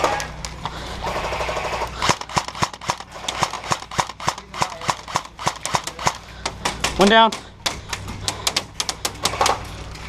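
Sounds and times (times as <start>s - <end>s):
airsoft guns firing: 1.0s - 7.3s.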